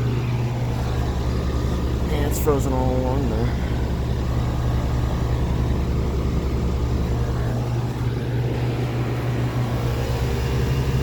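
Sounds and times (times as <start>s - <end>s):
heat pump outdoor unit humming: 0.0s - 11.0s.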